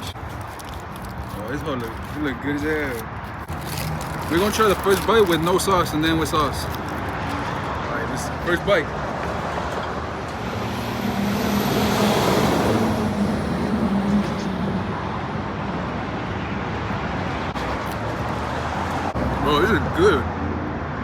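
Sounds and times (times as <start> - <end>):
road traffic noise: 0.0 - 21.0
vehicle passing close: 5.3 - 15.7.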